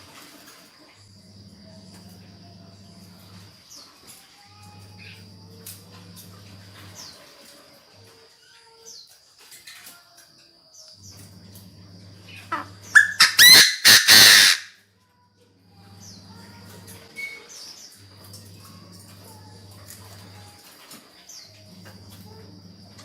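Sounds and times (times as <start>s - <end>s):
faint chirps: 0.8s - 14.2s, 15.1s - 23.0s
bird calling harsh ringing notes: 12.3s - 14.8s.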